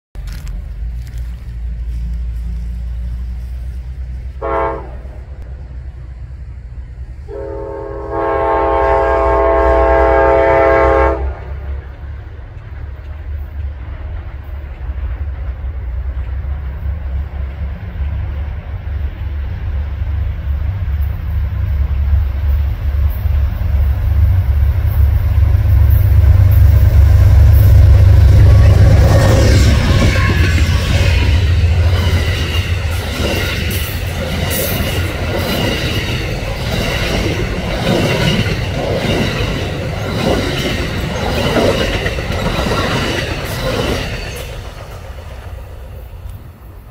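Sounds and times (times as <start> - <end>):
approaching train rumble: 0.1 - 46.9
locomotive horn blast: 4.4 - 5.4, 7.2 - 11.7.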